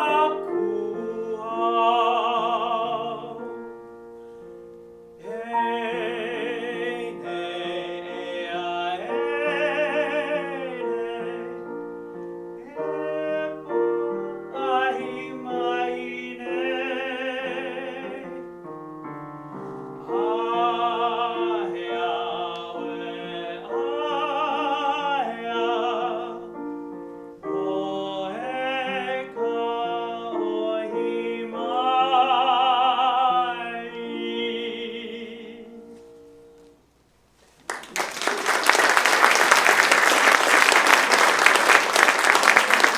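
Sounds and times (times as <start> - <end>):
baritone singing classical song: 0.0 - 3.7, 5.2 - 18.7, 19.5 - 26.8, 27.4 - 36.4
piano accompaniment: 0.0 - 36.9
singer breathing: 4.1 - 4.7.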